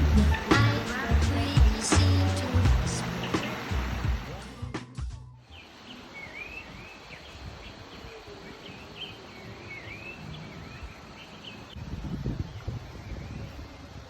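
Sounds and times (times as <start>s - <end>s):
birds chirping: 0.0s - 4.4s, 5.4s - 13.9s
low rumbling noise: 0.0s - 4.8s.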